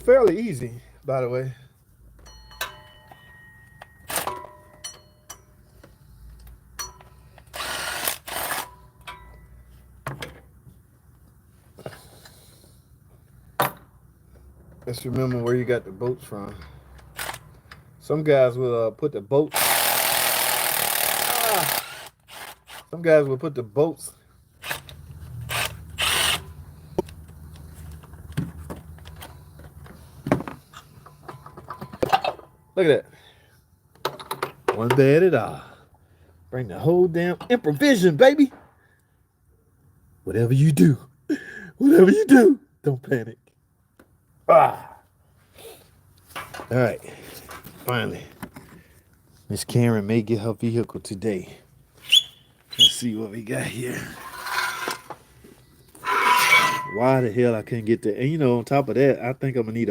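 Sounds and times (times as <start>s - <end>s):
metal clinks ringing: 2.2s - 5.6s
cordless power tool bursts: 7.5s - 8.8s, 19.5s - 22.8s, 25.5s - 26.5s.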